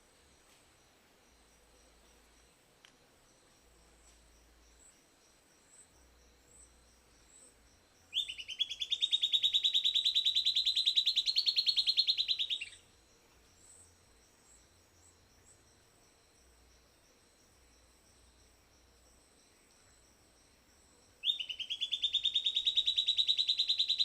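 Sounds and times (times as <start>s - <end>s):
faint insect chorus: 0.0s - 24.0s
bird singing fast trill: 8.1s - 12.9s, 21.2s - 24.0s.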